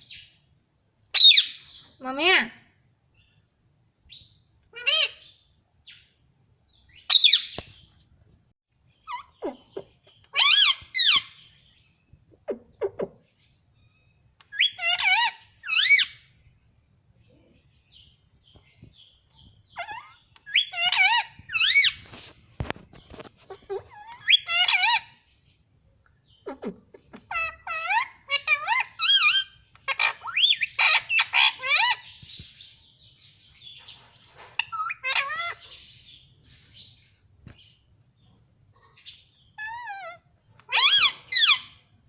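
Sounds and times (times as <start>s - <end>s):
parrot chirps and squawks: 1.2s - 1.7s, 4.7s - 5.4s, 6.9s - 7.6s, 9.0s - 11.5s, 12.3s - 16.3s, 19.7s - 22.2s, 23.2s - 25.3s, 26.3s - 32.2s, 33.8s - 36.9s, 38.8s - 41.9s.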